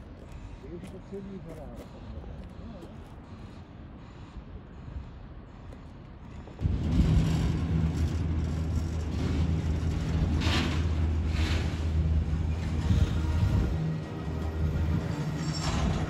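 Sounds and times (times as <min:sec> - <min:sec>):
freight train rumbling past: 0:03.3 - 0:16.0.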